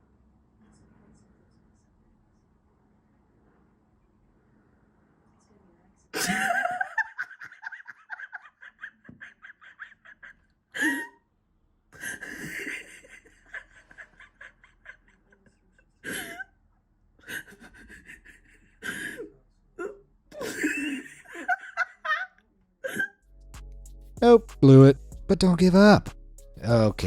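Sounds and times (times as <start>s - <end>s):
person laughing hard: 6.2s - 11.1s, 12.0s - 15.1s, 20.4s - 22.3s.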